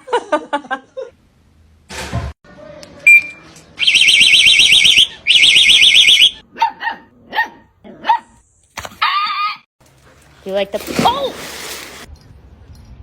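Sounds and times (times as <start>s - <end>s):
electronic alarm warbling: 3.8s - 6.4s.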